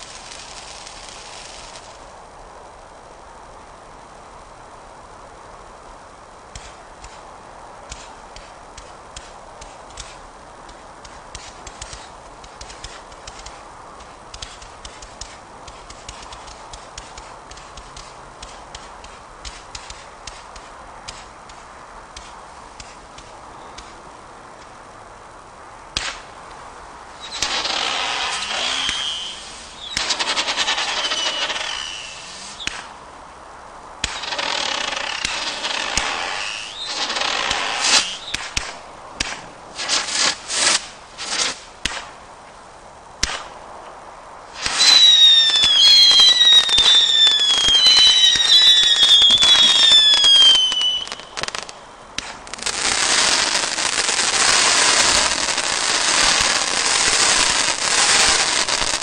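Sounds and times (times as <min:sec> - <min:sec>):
firework bangs: 0:00.0 - 0:02.1, 0:07.8 - 0:24.0, 0:25.9 - 0:26.4, 0:27.1 - 0:33.0, 0:34.0 - 0:42.2, 0:43.2 - 0:43.6, 0:44.5 - 0:59.0
whistling firework shots: 0:00.0 - 0:02.1, 0:11.1 - 0:21.6, 0:26.0 - 0:26.3, 0:27.1 - 0:33.0, 0:34.0 - 0:42.2, 0:43.2 - 0:43.6, 0:44.5 - 0:59.0
dense firework crackling: 0:00.0 - 0:24.7, 0:25.3 - 0:42.4, 0:43.2 - 0:43.7, 0:44.4 - 0:59.0.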